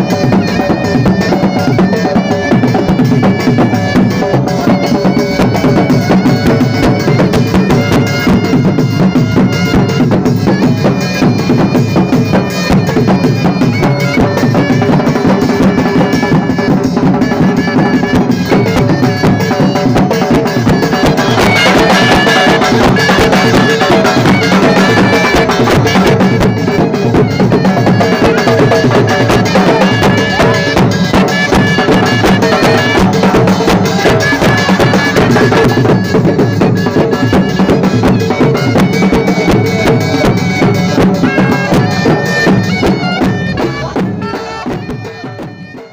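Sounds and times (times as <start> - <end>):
shawm playing reedy melody: 0.0 - 45.9
steady drumming: 0.0 - 45.9.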